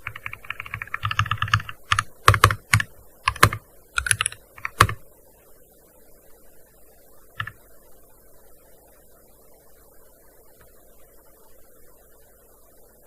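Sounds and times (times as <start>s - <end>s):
keyboard keystrokes: 0.0s - 5.0s.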